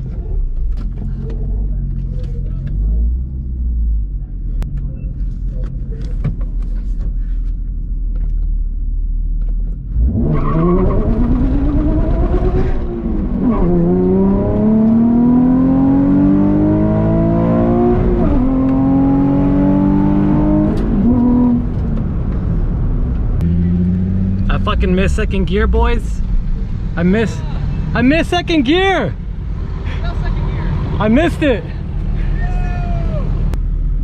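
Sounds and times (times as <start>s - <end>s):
car engine revving through gears: 9.8s - 24.6s.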